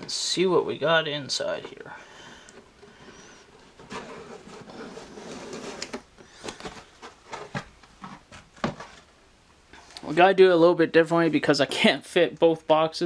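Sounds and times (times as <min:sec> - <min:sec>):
cardboard lid rubbing and sliding: 0:03.0 - 0:09.1.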